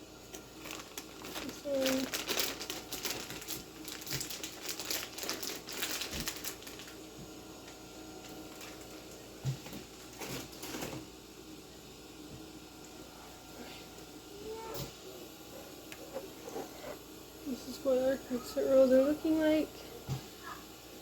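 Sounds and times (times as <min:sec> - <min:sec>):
crinkling and rustling: 0:00.3 - 0:11.1.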